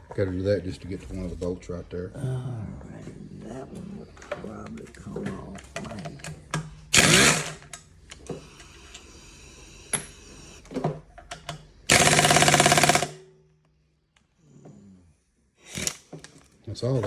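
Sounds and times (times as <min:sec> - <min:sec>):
tool clicks: 0:05.6 - 0:09.0
impact wrench hammering: 0:06.9 - 0:07.7, 0:11.9 - 0:13.2.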